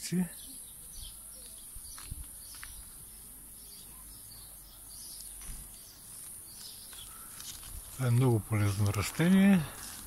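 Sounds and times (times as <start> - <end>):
distant bird chirps: 0.0 - 10.0.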